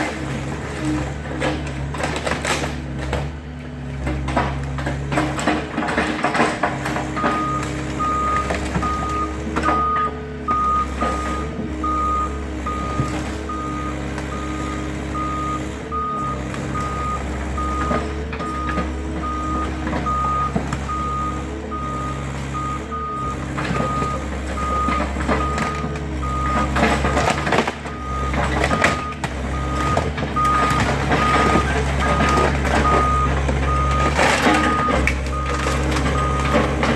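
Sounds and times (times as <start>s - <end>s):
excavator diesel engine drone: 0.0s - 36.9s
backup alarm beeping: 7.2s - 27.2s, 27.9s - 36.8s.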